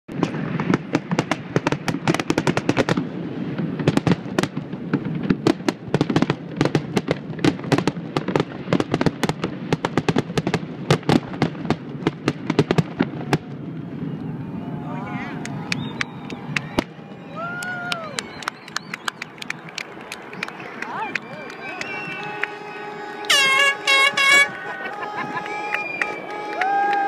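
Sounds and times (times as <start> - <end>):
fireworks bangs: 0.1 - 27.0.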